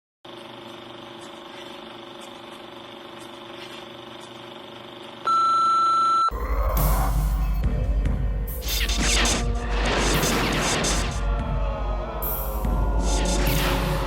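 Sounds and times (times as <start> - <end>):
electronic beep: 5.3 - 6.4.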